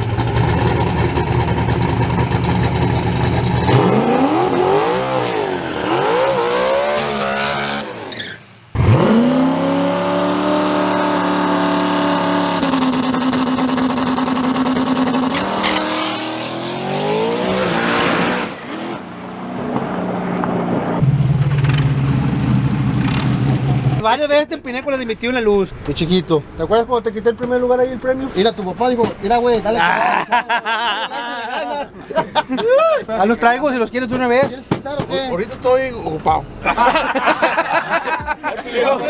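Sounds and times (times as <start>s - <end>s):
race truck engine revving: 0.0s - 24.0s.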